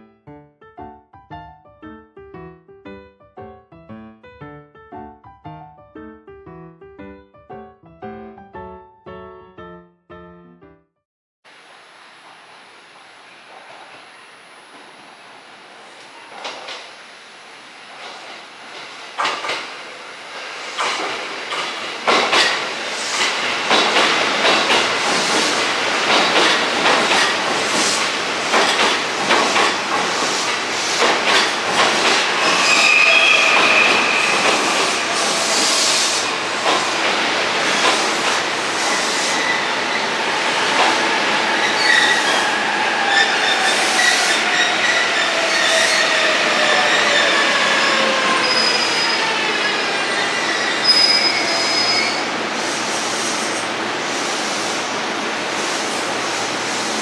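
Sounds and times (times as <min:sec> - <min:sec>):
train wheels clicking over rail joints: 0:18.0 - 0:19.7, 0:20.8 - 0:32.7, 0:33.5 - 0:38.5
brief wheel squeal: 0:32.4 - 0:34.7, 0:50.4 - 0:52.3.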